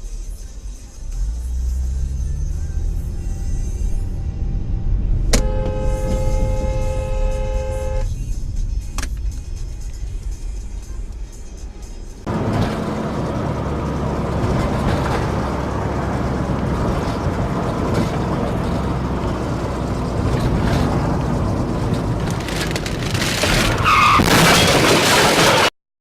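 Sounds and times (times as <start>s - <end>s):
car and road noise: 0.0s - 25.7s
tyre squeal: 23.5s - 24.7s.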